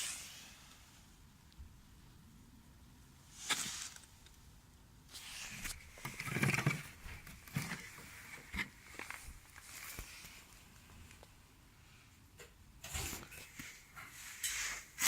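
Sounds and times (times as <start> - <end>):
rustling: 3.3 - 4.4, 5.1 - 11.3.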